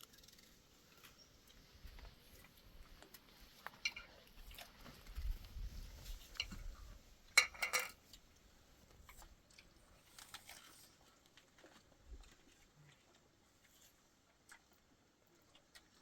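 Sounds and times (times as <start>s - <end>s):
objects knocking and clinking: 7.4s - 8.0s.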